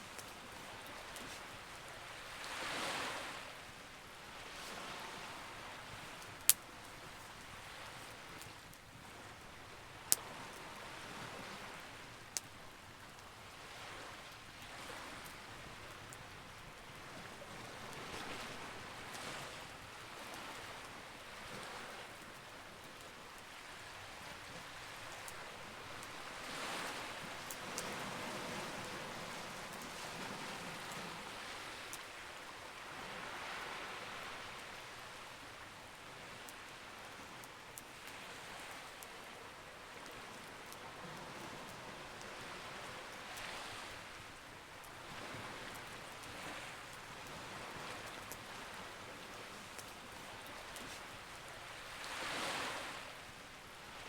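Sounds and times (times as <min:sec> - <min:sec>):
campfire crackling and popping: 0:00.0 - 0:02.2, 0:05.8 - 0:11.0, 0:11.7 - 0:13.6, 0:23.7 - 0:30.0, 0:44.2 - 0:51.9.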